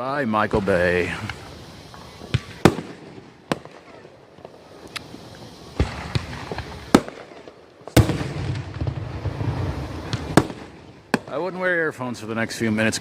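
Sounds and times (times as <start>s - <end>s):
crackling rumble of bursts: 0.0s - 13.0s
firework bangs: 0.0s - 13.0s.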